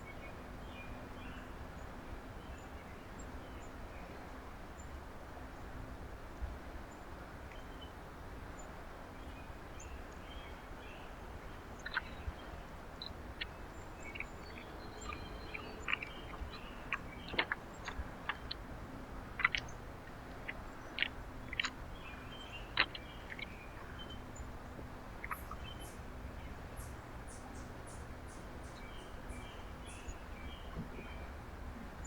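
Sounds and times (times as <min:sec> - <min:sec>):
small birds chip calls: 0:09.8 - 0:31.3.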